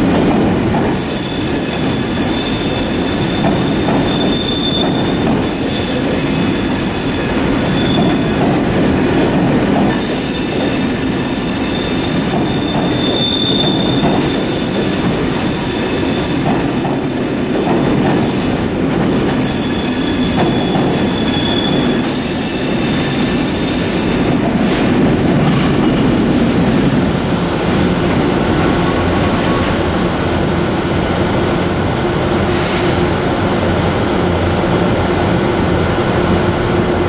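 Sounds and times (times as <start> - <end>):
train rumble with low hum: 0.0 - 37.0
train wheel squeal: 0.9 - 9.2, 9.8 - 24.9.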